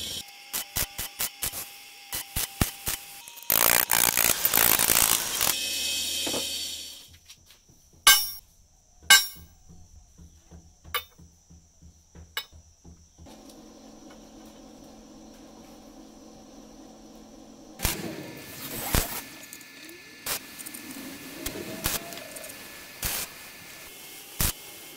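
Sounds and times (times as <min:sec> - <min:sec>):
welding arc crackling hiss: 0:00.0 - 0:07.2, 0:13.3 - 0:24.9.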